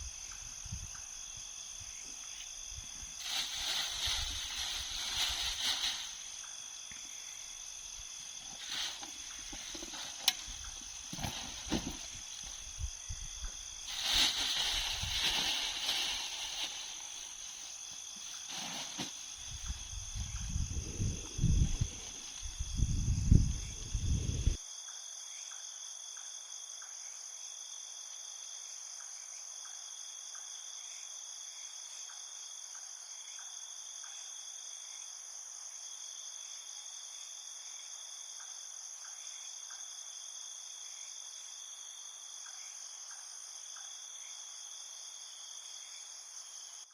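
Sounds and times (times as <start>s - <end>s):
crickets trilling: 0.0s - 46.9s
wind buffeting microphone: 19.5s - 24.6s.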